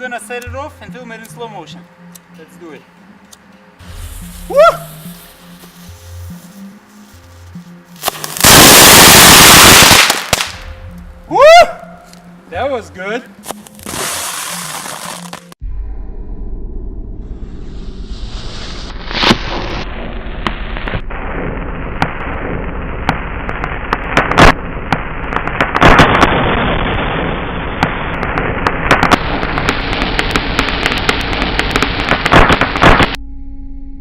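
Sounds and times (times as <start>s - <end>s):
firecracker crackling and popping: 3.8s - 12.2s, 13.4s - 15.6s, 18.1s - 33.2s
firecracker bangs: 8.0s - 10.8s, 18.1s - 33.2s.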